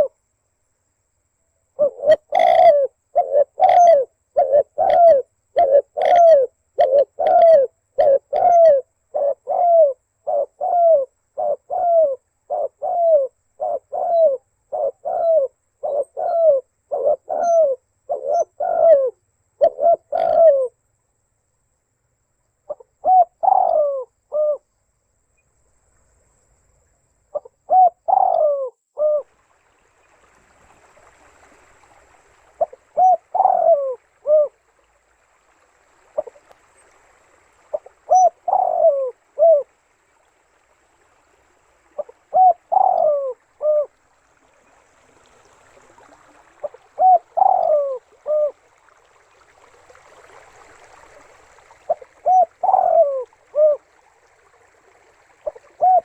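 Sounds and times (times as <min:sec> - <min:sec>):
dove cooing: 0:01.8 - 0:20.7, 0:22.7 - 0:24.6, 0:27.4 - 0:29.3, 0:32.5 - 0:34.6, 0:36.0 - 0:36.5, 0:37.6 - 0:39.7, 0:41.8 - 0:44.0, 0:45.7 - 0:48.8, 0:50.6 - 0:54.1, 0:55.2 - 0:56.0.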